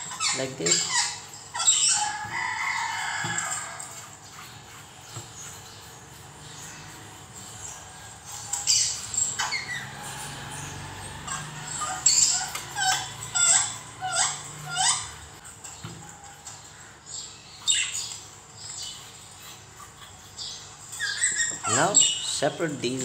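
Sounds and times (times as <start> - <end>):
birds calling: 0.0 - 23.0.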